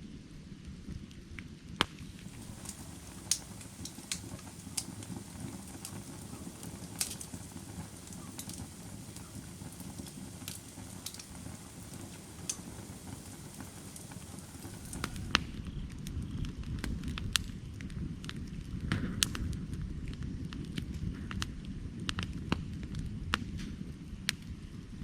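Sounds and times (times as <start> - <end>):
firewood crackles and pops: 0.6 - 25.0
fire low rush: 2.0 - 25.0.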